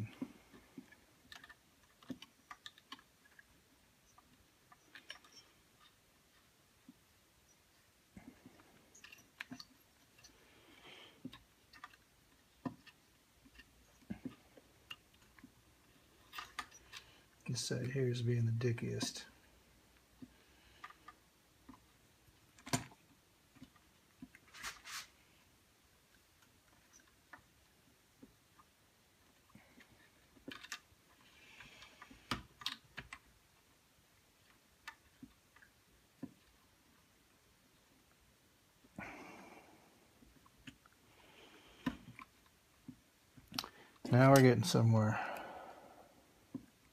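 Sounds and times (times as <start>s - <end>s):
small parts clicking and tapping: 0.0s - 18.0s, 19.9s - 24.5s, 26.1s - 37.1s
soft hiss: 3.8s - 22.5s, 33.5s - 46.9s
brief scrape: 24.5s - 25.1s.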